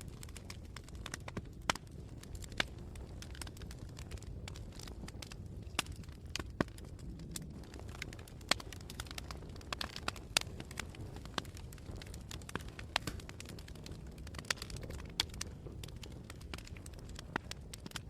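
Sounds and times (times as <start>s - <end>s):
campfire flames rumbling: 0.0s - 18.0s
wood crackling and popping: 0.0s - 18.0s.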